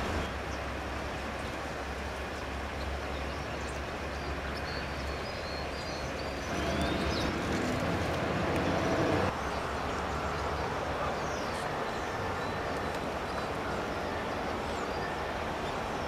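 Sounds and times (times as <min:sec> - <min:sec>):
distant traffic rumble: 0:00.0 - 0:16.0.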